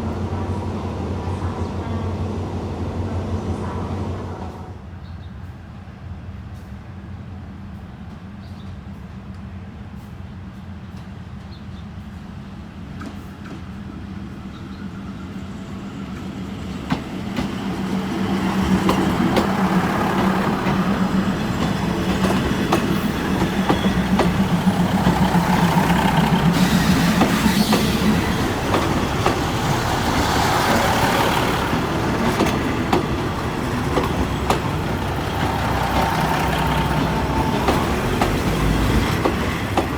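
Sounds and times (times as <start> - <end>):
diesel train engine drone: 0.0 - 39.9
train wheels clattering on rails: 16.1 - 39.9.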